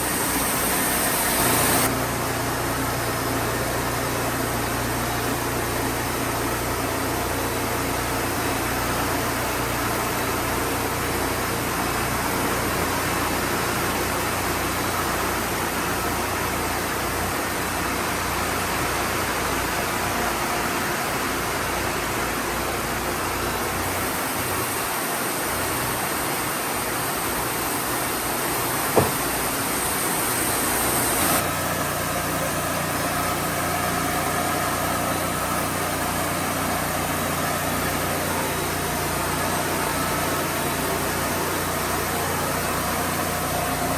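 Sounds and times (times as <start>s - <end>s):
high hiss: 0.0s - 1.9s, 24.4s - 31.4s.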